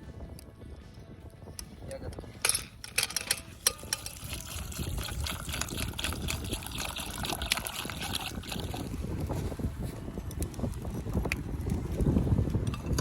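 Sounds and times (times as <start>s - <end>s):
liquid trickling pour: 3.7s - 9.4s.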